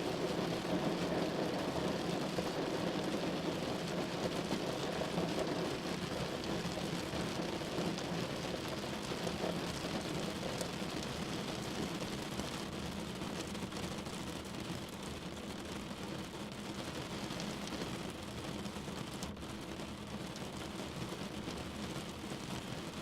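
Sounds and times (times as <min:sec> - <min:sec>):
heavy rain falling: 0:00.0 - 0:12.6.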